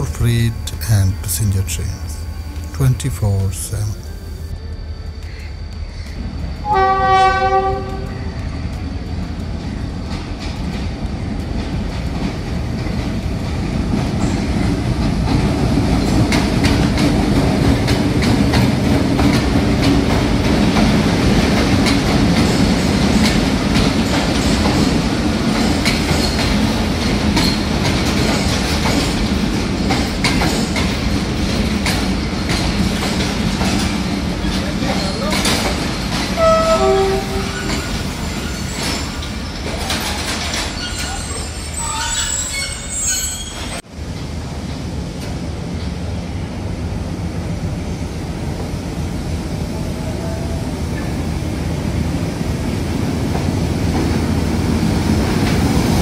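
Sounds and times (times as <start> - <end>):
train rumbling: 0.0 - 56.0
wheels clicking over rail joints: 6.0 - 41.4
train horn blast: 6.6 - 8.2, 36.4 - 37.8.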